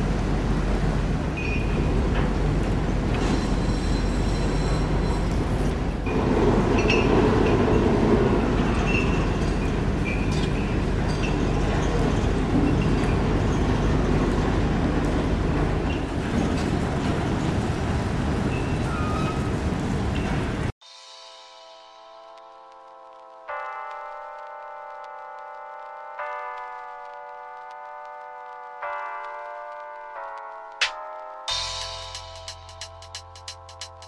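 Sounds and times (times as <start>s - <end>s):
train rumbling on rails: 0.0s - 20.8s.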